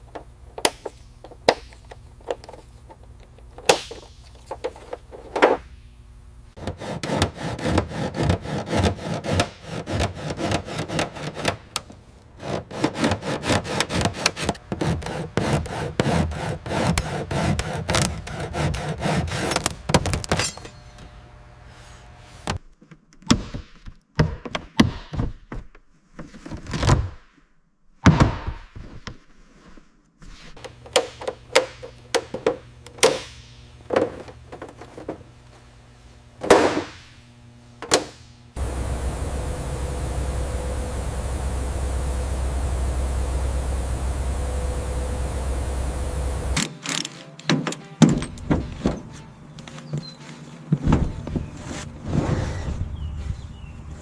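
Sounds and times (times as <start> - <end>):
hand tool scraping: 6.6 - 11.7, 12.4 - 21.0
faint steady hum: 30.6 - 46.6.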